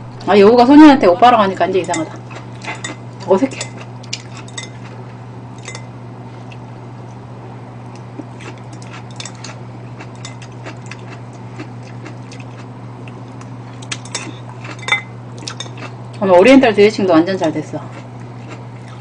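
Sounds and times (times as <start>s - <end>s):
steady low hum: 0.0s - 19.0s
chewing mouth sounds: 2.1s - 5.0s, 7.9s - 16.0s, 17.9s - 19.0s.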